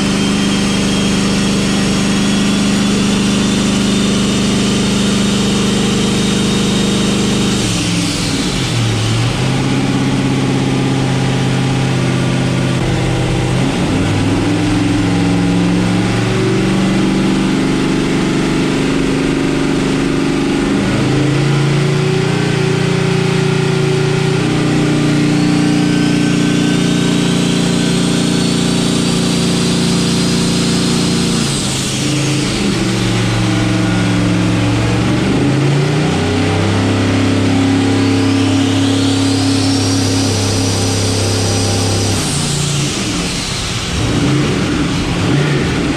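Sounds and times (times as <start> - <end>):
engine revving on dyno: 0.0 - 45.9.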